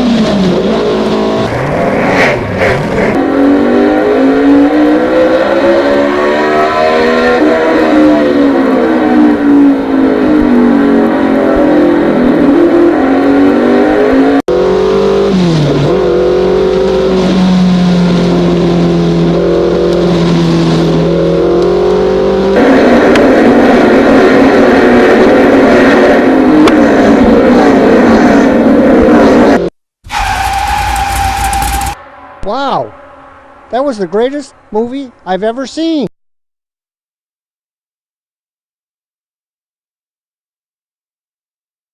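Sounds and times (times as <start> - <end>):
electric motors whining: 30.1 - 32.0.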